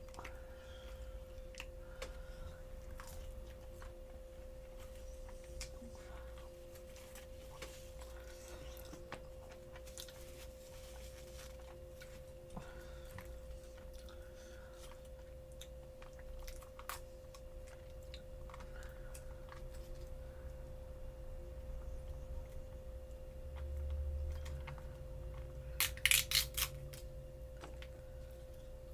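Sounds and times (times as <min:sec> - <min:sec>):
chewing fried chicken: 0:00.0 - 0:20.8.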